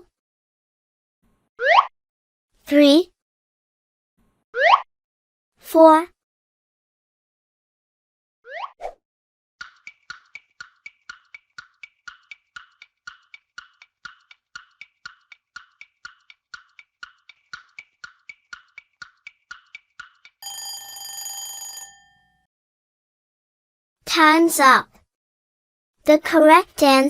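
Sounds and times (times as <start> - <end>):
clock ticking: 9.6 - 20.8
ringing alarm tone: 20.4 - 22.5.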